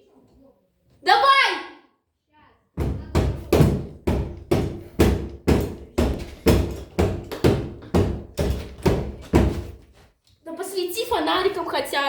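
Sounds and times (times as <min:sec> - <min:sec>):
heavy blows against a door: 0:02.8 - 0:09.8.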